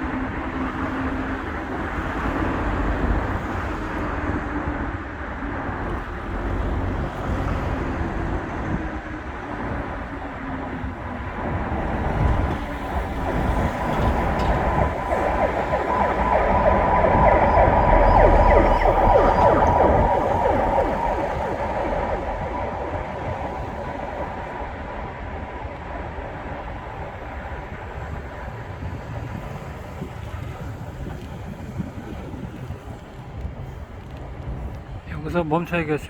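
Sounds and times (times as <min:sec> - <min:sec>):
low traffic rumble: 0:00.0 - 0:36.0
emergency siren passing: 0:10.6 - 0:25.2.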